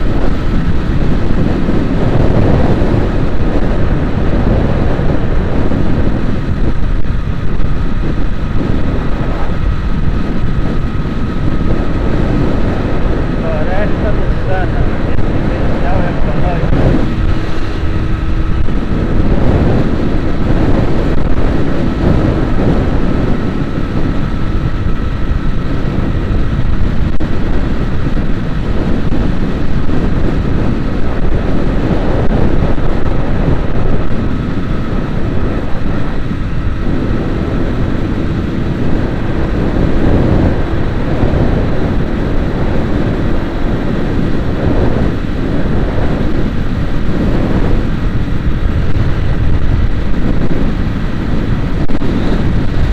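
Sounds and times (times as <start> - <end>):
vehicle engine and road noise: 0.0 - 52.9.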